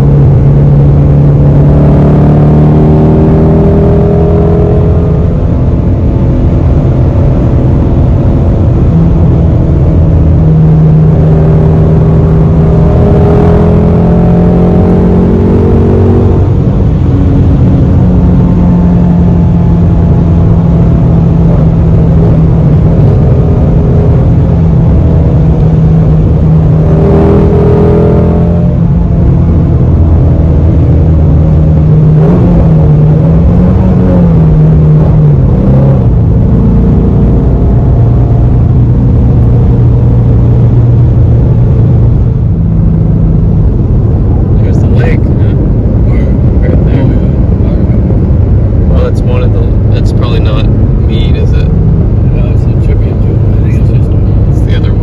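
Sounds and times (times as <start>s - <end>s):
car engine cruising: 0.0s - 55.0s.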